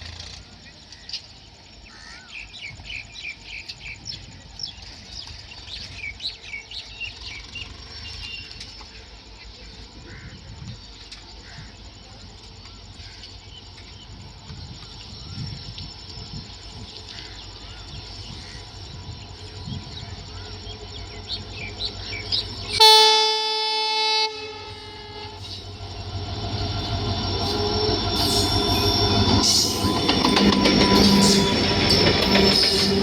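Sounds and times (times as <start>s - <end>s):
train rumbling: 0.0s - 33.0s
locomotive horn: 22.3s - 33.0s.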